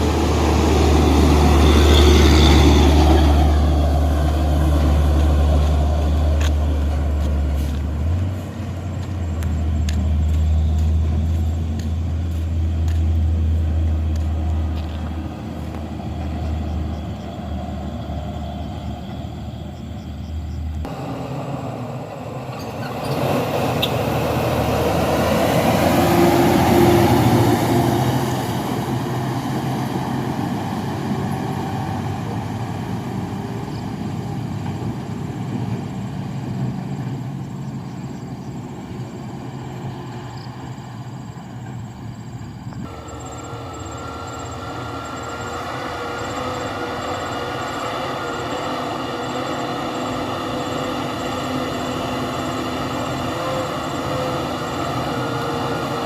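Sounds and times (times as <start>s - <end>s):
dump truck diesel engine droning: 0.0s - 56.0s
truck passing: 0.0s - 56.0s.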